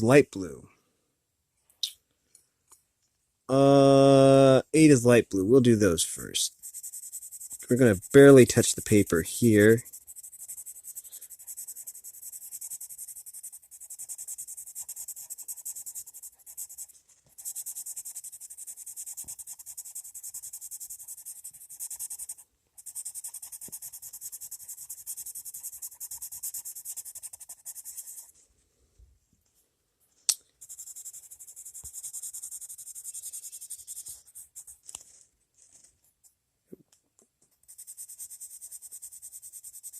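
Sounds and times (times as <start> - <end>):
coloured pencil shading on paper: 6.4 - 28.4, 30.6 - 34.8, 37.6 - 39.9.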